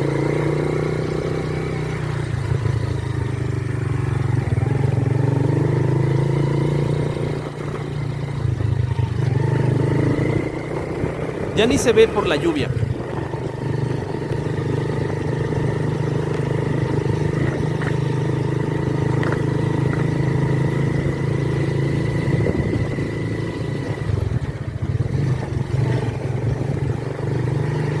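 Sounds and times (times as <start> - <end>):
vehicle engine running: 7.3 - 27.0.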